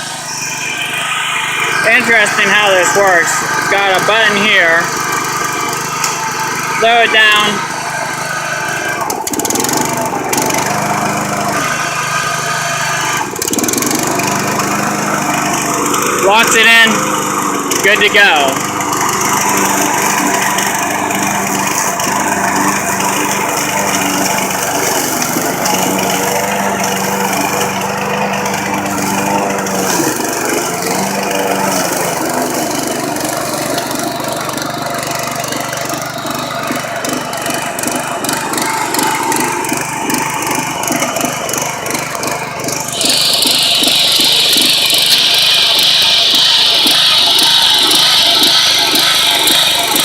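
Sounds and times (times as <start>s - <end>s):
lawn mower engine running: 0.0s - 50.0s
loud hiss: 42.9s - 50.0s.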